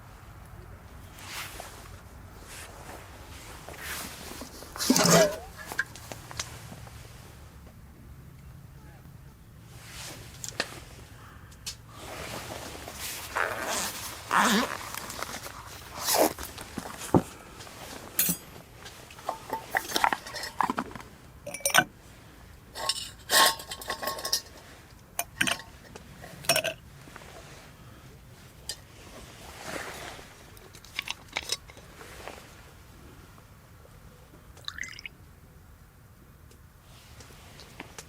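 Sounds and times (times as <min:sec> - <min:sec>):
cookware and utensils clinking: 0:04.8 - 0:05.9, 0:19.2 - 0:21.9, 0:22.8 - 0:25.8.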